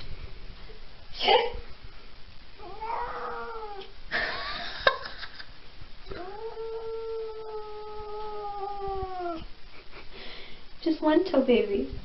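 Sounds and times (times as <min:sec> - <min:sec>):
cat yowling: 0:02.6 - 0:03.9, 0:06.1 - 0:09.5.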